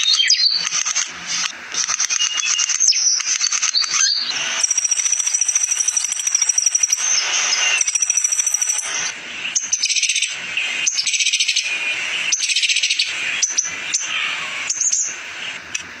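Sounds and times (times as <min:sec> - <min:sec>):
bird singing high trills: 0:00.0 - 0:00.8, 0:01.9 - 0:15.6.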